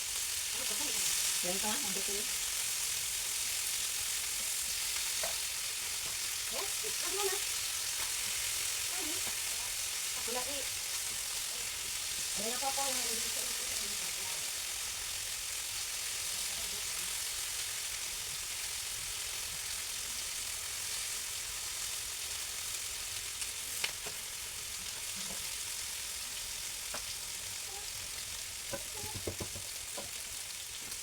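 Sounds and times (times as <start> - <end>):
food sizzling in hot oil: 0.0 - 31.0
knocks: 28.7 - 30.1.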